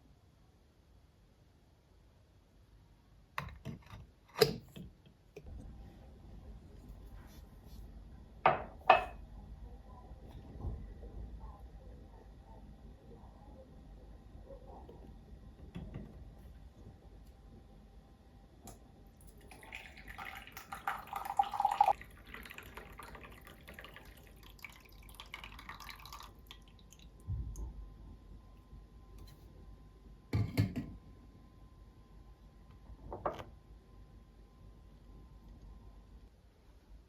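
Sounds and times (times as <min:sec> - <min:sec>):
water running: 0:19.2 - 0:27.2.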